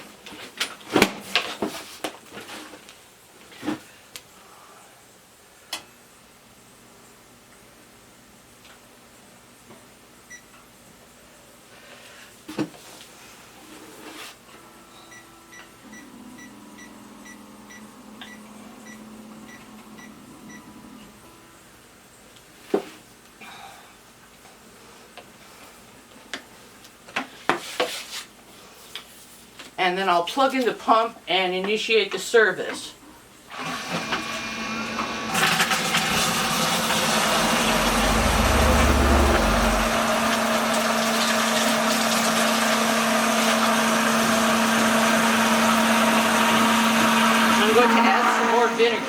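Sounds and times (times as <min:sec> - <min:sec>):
electric pump humming: 0:33.5 - 0:49.0
low steady hum: 0:36.3 - 0:40.9.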